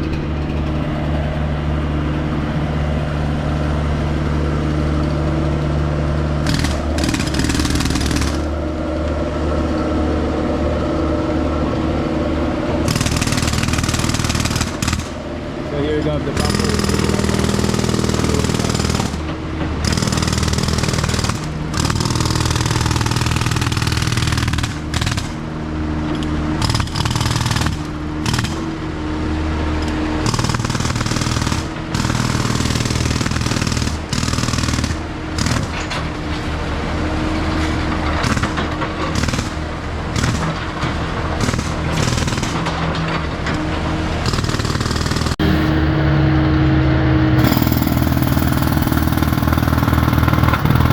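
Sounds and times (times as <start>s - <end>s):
machine engine running: 0.0s - 25.4s, 44.3s - 50.9s
jackhammer on concrete: 4.7s - 8.7s, 12.8s - 15.2s, 16.0s - 25.5s, 26.1s - 28.8s, 29.9s - 36.1s, 38.0s - 43.2s, 44.2s - 45.9s, 47.4s - 50.9s.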